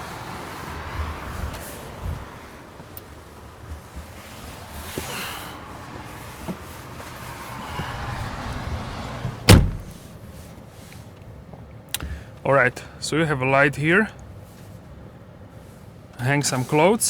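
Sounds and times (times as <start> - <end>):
rustling in car seat: 0.5 - 11.2
car door slamming: 7.6 - 10.2.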